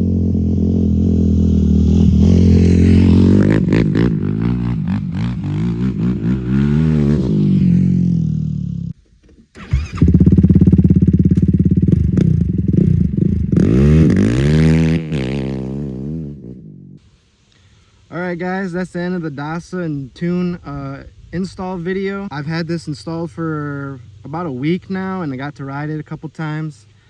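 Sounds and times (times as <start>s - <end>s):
quad engine revving: 0.0s - 8.9s, 9.6s - 16.8s.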